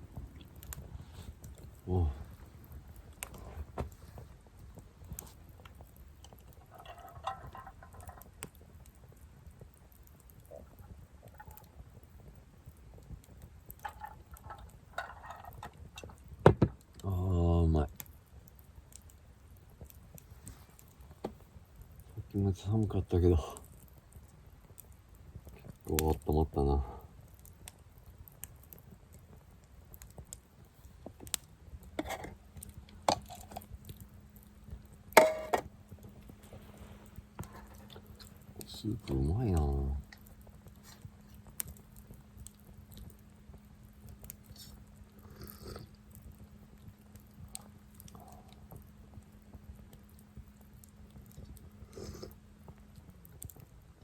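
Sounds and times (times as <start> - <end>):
fire pop: 0.0 - 45.2
campfire embers crackling: 0.0 - 54.0
chewing and slurping: 44.5 - 46.2.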